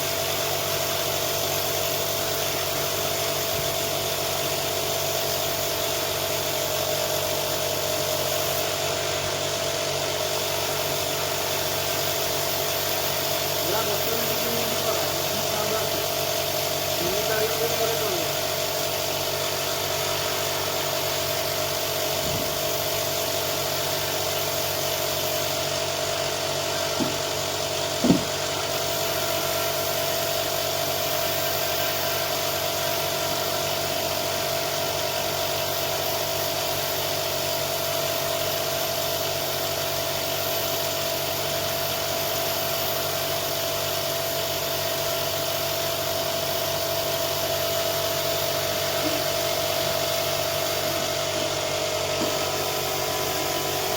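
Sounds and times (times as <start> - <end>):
electric power tool humming: 17.0 - 32.5, 47.8 - 53.9
short knocks: 27.0 - 27.4, 28.0 - 28.5.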